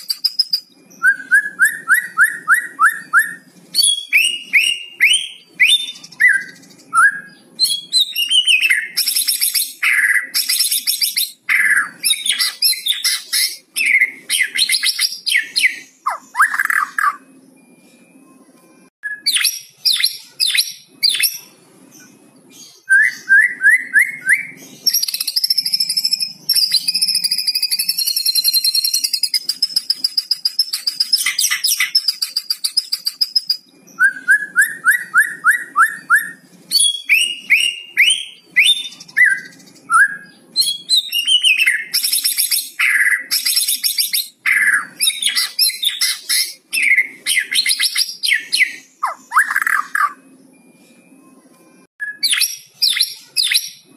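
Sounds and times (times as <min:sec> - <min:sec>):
songbird singing varied song: 0:19.0 - 0:50.6.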